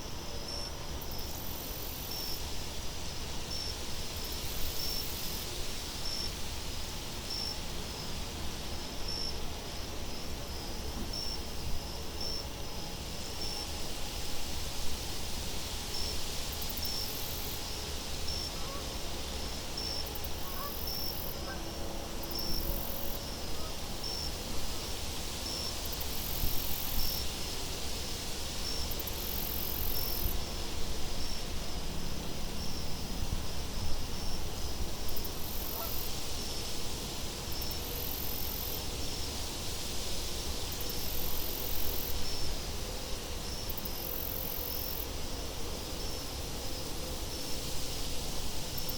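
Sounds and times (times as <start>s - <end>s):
high insect trills: 0.0s - 48.9s
wind-like hiss: 0.0s - 48.9s
cricket chirping: 28.2s - 31.5s, 40.8s - 48.0s.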